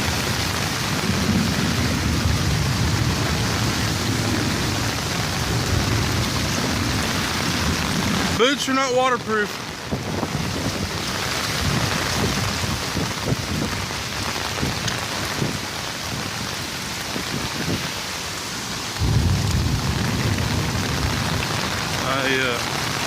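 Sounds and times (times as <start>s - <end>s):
rain falling on water: 0.0s - 23.0s
low rumble: 19.0s - 22.0s.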